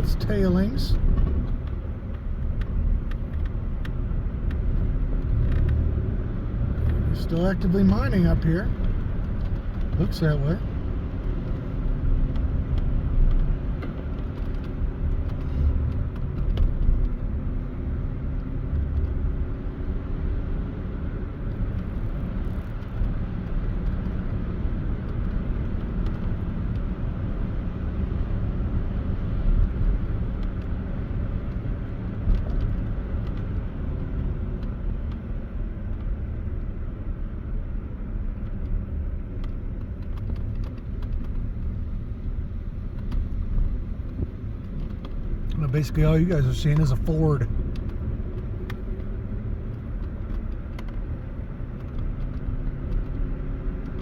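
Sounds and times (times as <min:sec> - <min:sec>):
car cabin road rumble: 0:00.0 - 0:54.0
faint engine drone: 0:41.1 - 0:47.8.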